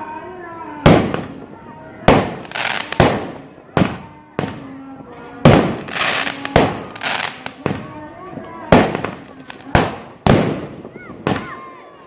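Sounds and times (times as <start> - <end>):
fireworks banging: 0.7 - 11.7.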